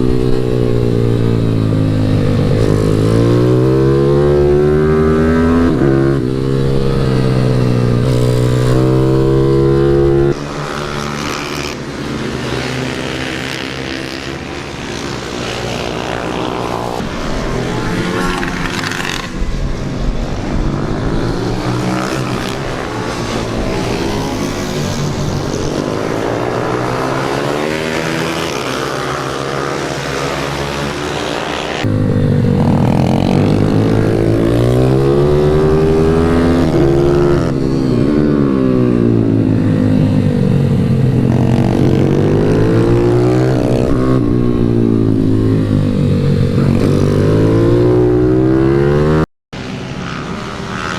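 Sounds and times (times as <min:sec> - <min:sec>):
motorbike engine revving: 0:00.0 - 0:17.0, 0:21.8 - 0:50.9.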